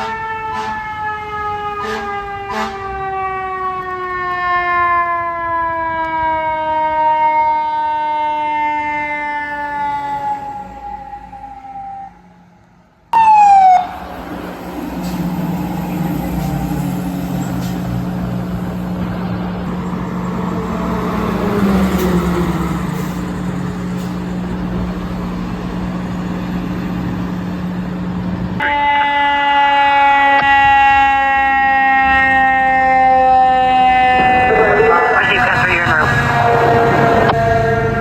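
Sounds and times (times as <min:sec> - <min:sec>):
multi-tone horn blare: 0:00.0 - 0:03.8, 0:28.6 - 0:38.0
fire truck siren: 0:00.0 - 0:38.0
truck engine droning: 0:09.6 - 0:28.9, 0:29.5 - 0:38.0.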